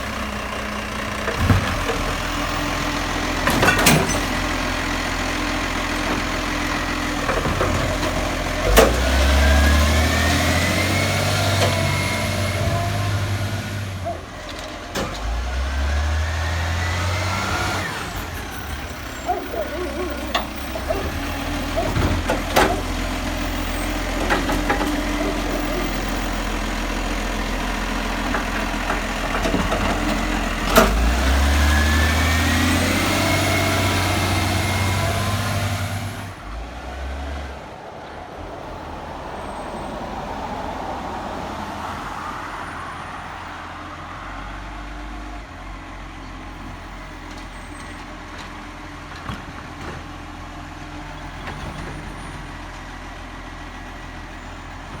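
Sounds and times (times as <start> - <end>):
garbage truck engine revving: 0.0 - 37.8
vehicle passing: 31.0 - 44.8.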